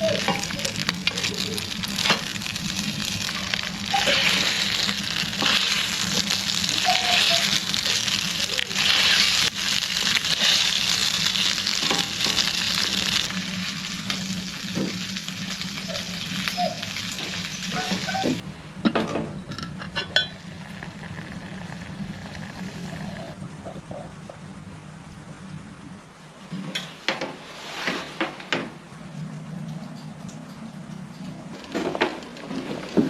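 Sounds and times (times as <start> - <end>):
food sizzling in a pan: 0.0 - 18.4.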